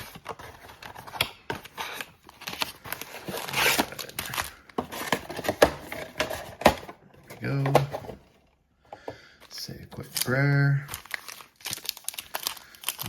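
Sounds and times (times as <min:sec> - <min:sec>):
plastic wrapping ripping and rustling: 0:00.0 - 0:05.1, 0:10.0 - 0:13.0.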